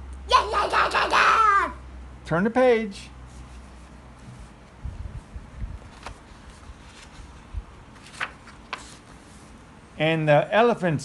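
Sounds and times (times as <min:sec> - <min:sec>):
book page turning: 0:05.9 - 0:09.4.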